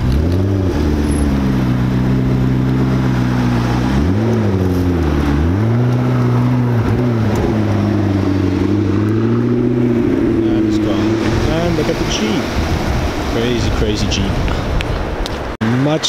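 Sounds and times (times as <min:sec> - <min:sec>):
car engine revving: 0:00.0 - 0:15.8.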